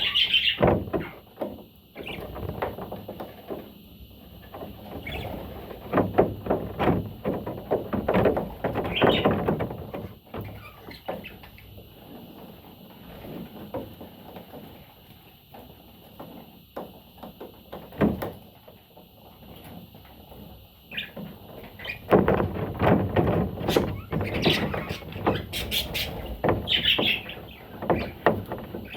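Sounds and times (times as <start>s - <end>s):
budgerigar chirping: 0.0s - 0.6s.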